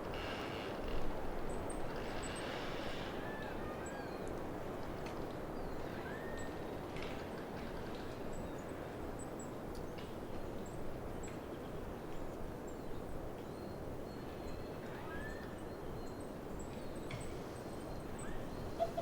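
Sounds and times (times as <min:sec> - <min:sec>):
creaking tree trunks rubbing: 0:00.0 - 0:01.2, 0:01.9 - 0:03.2
wind through pine forest: 0:00.0 - 0:19.0.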